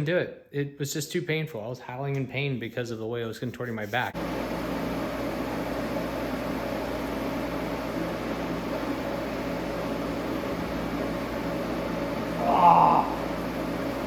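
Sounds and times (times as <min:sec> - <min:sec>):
machine hum with hiss: 0:04.2 - 0:14.0.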